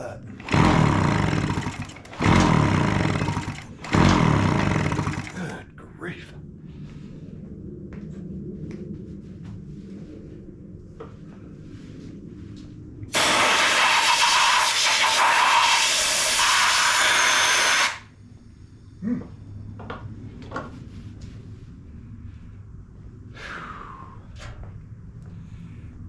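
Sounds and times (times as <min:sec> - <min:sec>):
parts clicking and knocking: 0:00.4 - 0:05.4
air blow gun hissing: 0:13.1 - 0:18.0.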